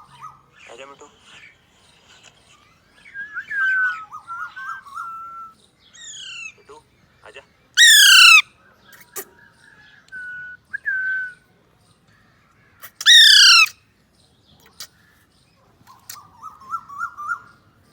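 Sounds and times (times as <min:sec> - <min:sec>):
parakeet harsh squawk: 0:07.8 - 0:08.4, 0:12.8 - 0:13.8
parakeet warbling chatter: 0:07.8 - 0:08.4, 0:12.8 - 0:13.7
parakeet whistles: 0:07.8 - 0:08.4, 0:13.0 - 0:13.7.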